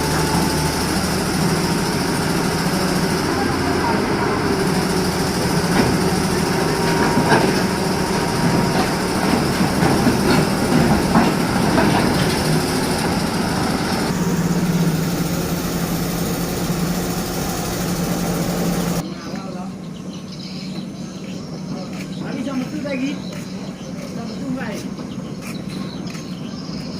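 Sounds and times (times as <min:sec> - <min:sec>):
engine running: 0:00.0 - 0:19.2
clanks and knocks: 0:05.0 - 0:14.1.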